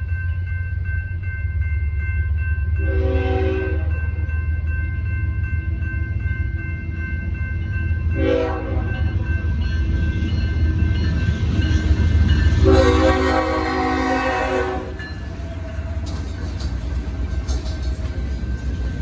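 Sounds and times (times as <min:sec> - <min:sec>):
crossing bell ringing: 0:00.0 - 0:19.0
diesel locomotive rumbling: 0:00.0 - 0:19.0
train air horn blasts: 0:02.8 - 0:03.9, 0:08.2 - 0:09.0, 0:12.6 - 0:15.0.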